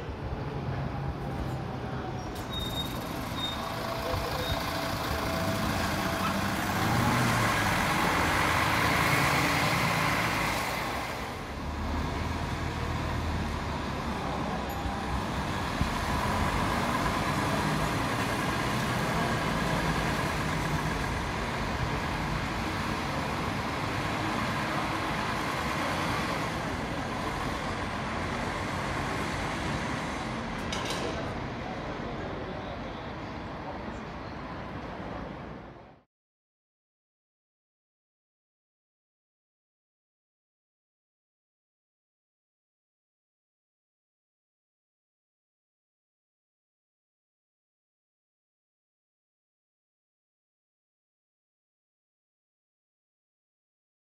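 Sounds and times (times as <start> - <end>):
train rumbling: 0.0 - 32.2.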